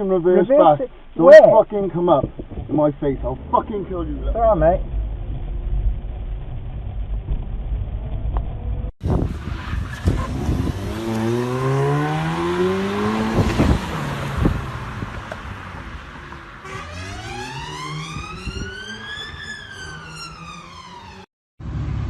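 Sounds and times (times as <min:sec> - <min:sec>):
car engine and road rumble: 0:00.0 - 0:22.0
engine revving up: 0:09.2 - 0:22.0.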